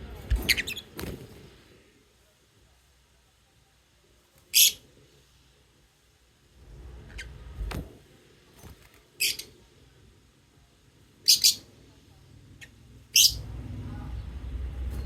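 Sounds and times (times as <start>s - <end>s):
lovebirds shrill chirps: 4.5s - 4.8s, 11.2s - 11.7s, 12.6s - 13.4s.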